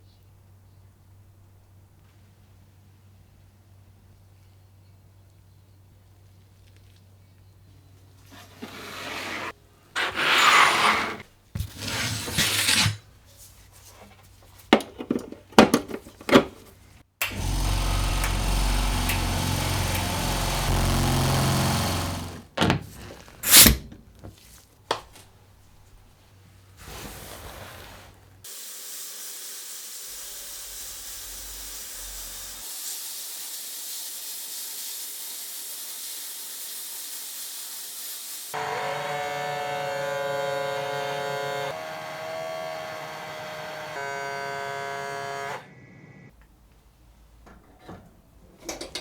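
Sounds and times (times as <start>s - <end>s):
power tool running: 17.2s - 22.6s, 28.5s - 37.0s, 38.2s - 46.3s
steady hiss: 26.7s - 38.6s
tools being handled: 47.5s - 49.0s.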